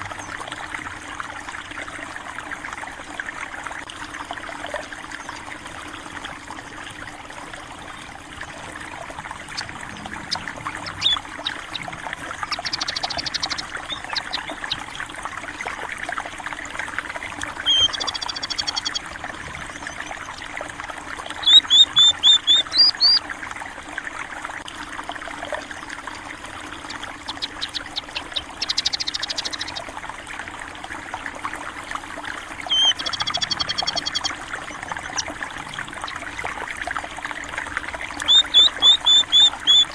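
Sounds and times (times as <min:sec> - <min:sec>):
stream trickling: 0:00.0 - 0:39.9
sparrows chirping: 0:09.4 - 0:15.1, 0:17.6 - 0:20.5, 0:21.3 - 0:23.2, 0:26.8 - 0:29.9, 0:32.7 - 0:36.3, 0:38.2 - 0:39.9.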